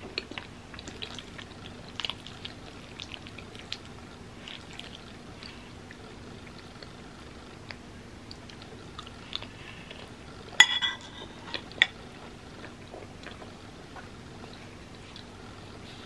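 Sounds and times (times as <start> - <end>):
close-up chewing: 0.0 - 10.6, 11.3 - 16.0
metal fork clinking on ceramic bowl: 10.6 - 11.3.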